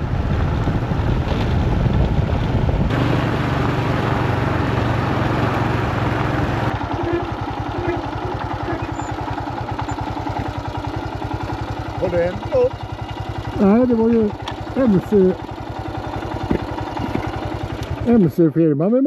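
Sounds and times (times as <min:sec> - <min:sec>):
motorcycle engine chugging: 0:00.0 - 0:18.5
rushing noise: 0:02.8 - 0:06.8.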